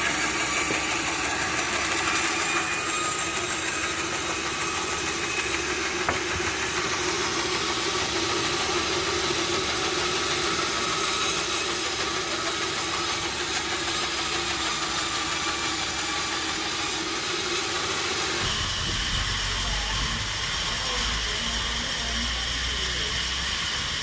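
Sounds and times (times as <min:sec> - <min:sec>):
steady high tone: 0:00.0 - 0:14.2
sawmill machinery running: 0:00.0 - 0:24.0.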